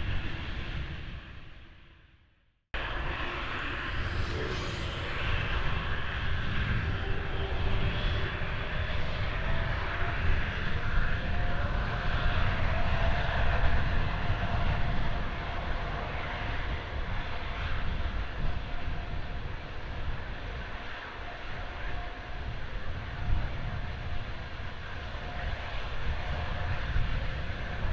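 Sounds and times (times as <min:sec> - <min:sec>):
jet engines rumbling: 0:02.8 - 0:14.2
faint jet whine: 0:02.8 - 0:27.9.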